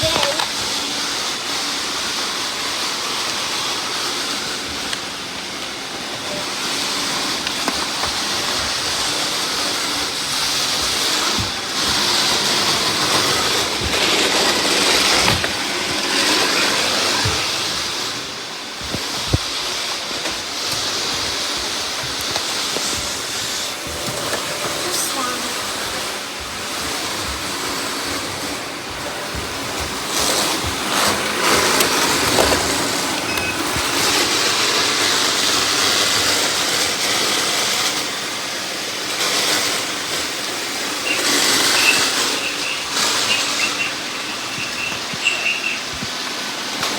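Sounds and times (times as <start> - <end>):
robot vacuums whirring: 0.0 - 46.9.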